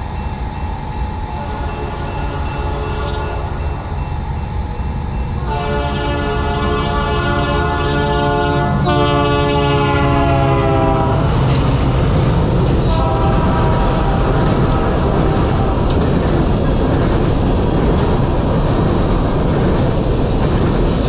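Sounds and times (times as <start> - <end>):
train engines and wheels rumbling: 0.0 - 21.0
locomotive air horn chord: 1.3 - 3.8, 5.4 - 11.3, 12.8 - 15.9.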